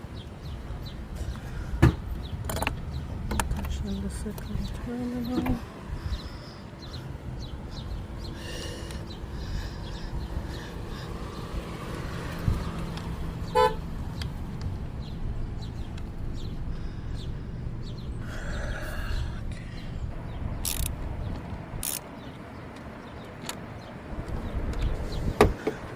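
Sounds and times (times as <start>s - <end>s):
car horn toot: 13.5s - 13.8s.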